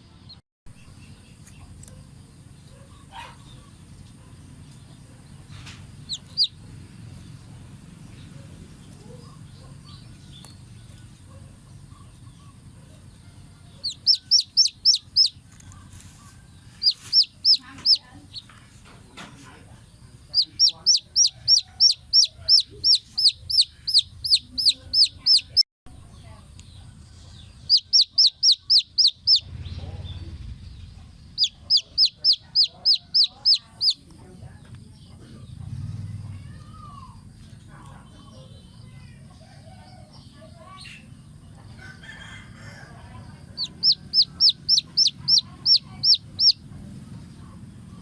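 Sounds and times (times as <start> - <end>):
baby chicks peeping: 0.0 - 48.0
low rumble: 19.9 - 34.0.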